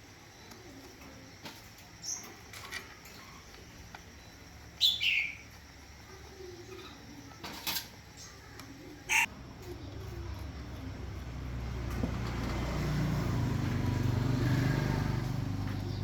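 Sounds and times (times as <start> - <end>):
bird call sliding downward: 9.1 - 9.3.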